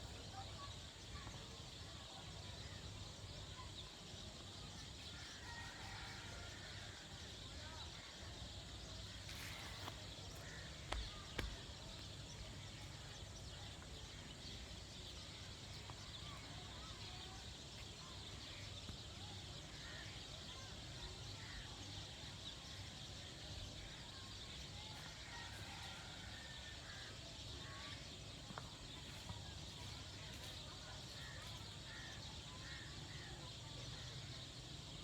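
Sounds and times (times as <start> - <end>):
birds chirping: 7.7 - 35.0.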